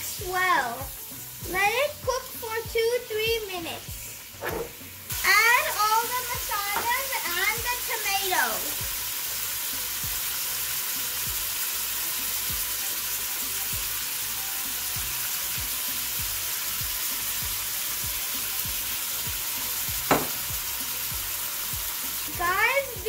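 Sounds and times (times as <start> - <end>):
meat sizzling in hot oil: 0.0 - 23.0.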